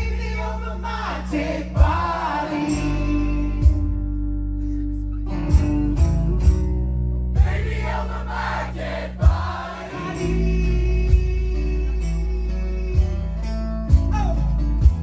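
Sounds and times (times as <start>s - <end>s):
voices singing: 0.0s - 3.6s, 7.4s - 11.3s
acoustic guitar and bass chords: 0.0s - 15.0s.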